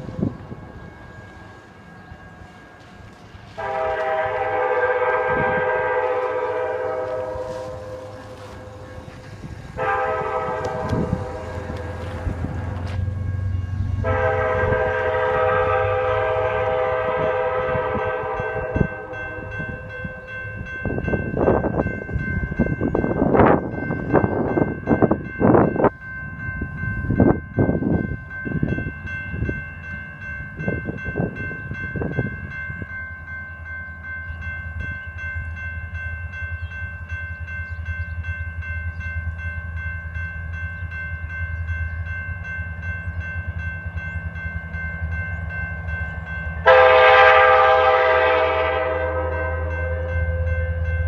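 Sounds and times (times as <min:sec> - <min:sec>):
locomotive engine rumble: 0:00.0 - 0:20.4
crossing bell ringing: 0:00.0 - 0:51.0
train air horn: 0:03.5 - 0:12.4, 0:14.0 - 0:19.8, 0:46.6 - 0:50.1
gusts of noise: 0:03.6 - 0:19.9.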